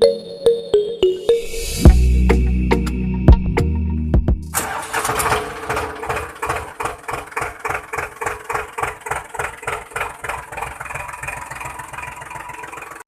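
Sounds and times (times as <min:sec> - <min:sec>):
regular mechanical clatter: 0:04.5 - 0:13.0.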